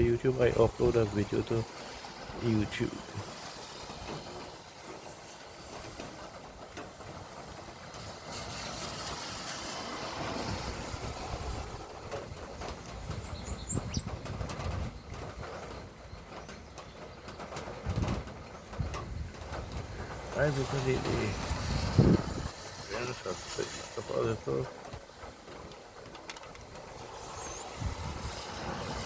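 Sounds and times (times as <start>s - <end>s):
vehicle passing on road: 0.3s - 13.2s, 19.7s - 29.0s.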